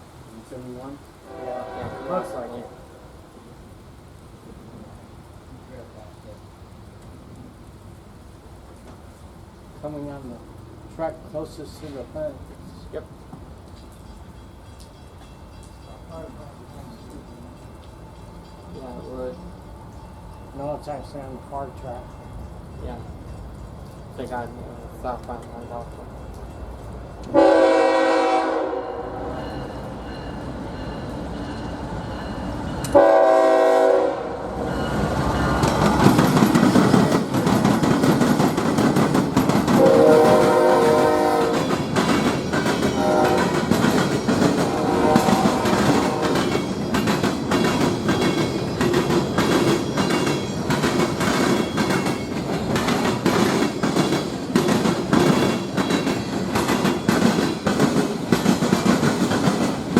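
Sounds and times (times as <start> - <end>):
train rumbling past: 0.0 - 59.9
locomotive air horn: 1.2 - 3.2, 27.3 - 29.3, 32.9 - 34.6, 39.8 - 41.7, 43.0 - 43.7, 44.6 - 46.5
wheels clicking over rail joints: 5.2 - 27.4, 34.6 - 59.9.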